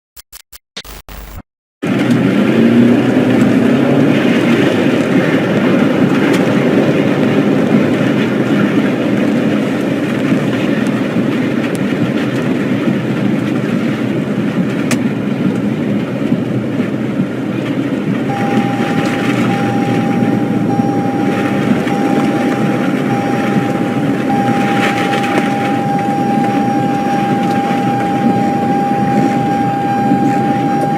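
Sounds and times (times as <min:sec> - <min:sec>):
tornado wind rushing: 0:01.8 - 0:30.9
steady high tone: 0:18.3 - 0:30.9.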